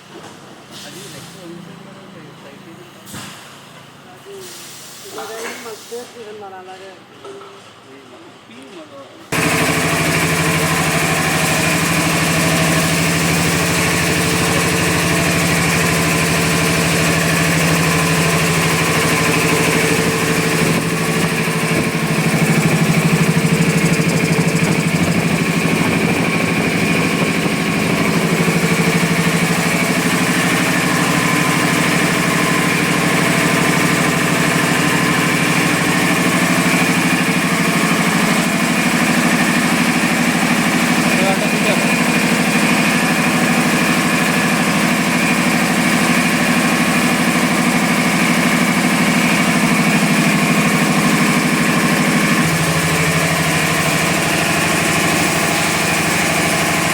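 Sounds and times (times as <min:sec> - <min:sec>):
air compressor running: 0:00.0 - 0:06.6, 0:09.3 - 0:56.9
air hiss: 0:04.4 - 0:06.2.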